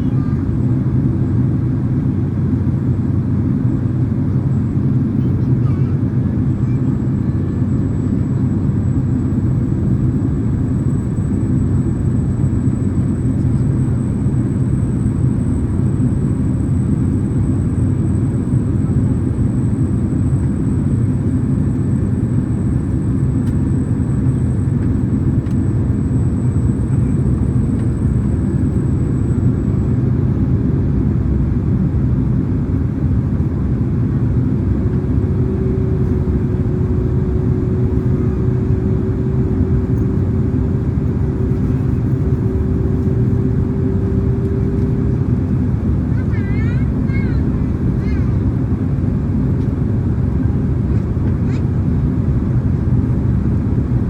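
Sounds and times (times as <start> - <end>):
deep roar of jet engines: 0.0 - 54.0
faint high whine: 6.6 - 30.9, 34.9 - 48.0.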